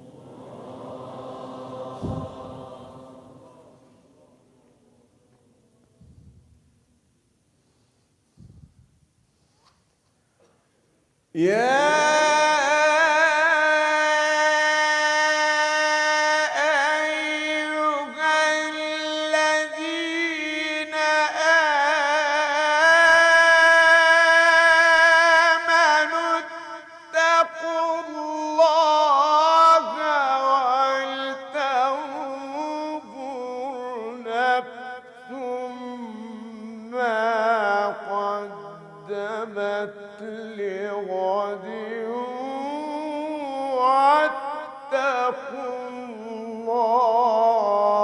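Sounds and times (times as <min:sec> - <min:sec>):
man chanting melodically: 0:11.4 - 0:48.0.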